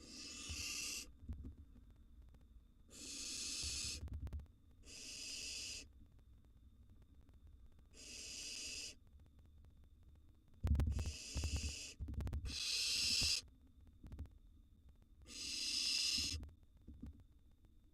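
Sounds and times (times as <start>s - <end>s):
owl nestlings hissing: 0.0s - 1.1s, 2.9s - 4.0s, 4.8s - 5.9s, 7.9s - 9.0s, 10.9s - 13.4s, 15.3s - 16.4s.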